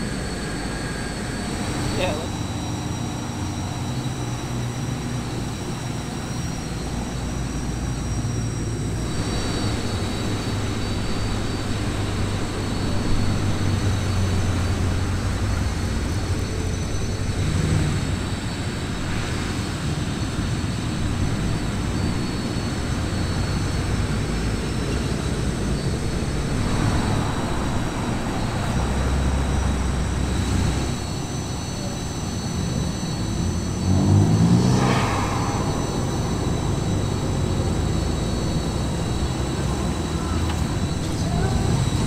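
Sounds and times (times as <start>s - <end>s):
car engines driving past: 9.0s - 42.0s.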